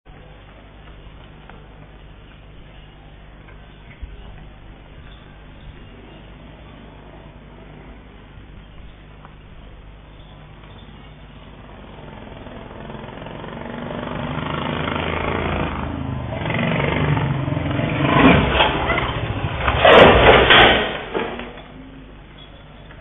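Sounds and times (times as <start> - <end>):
motorcycle revving: 11.6 - 21.4.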